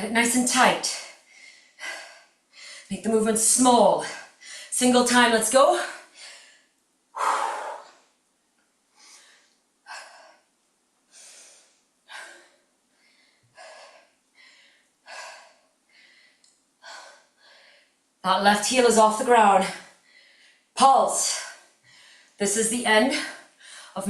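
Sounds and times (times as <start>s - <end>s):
woman breathing hard: 6.0s - 8.1s, 8.9s - 18.0s, 19.8s - 20.7s, 21.5s - 22.4s.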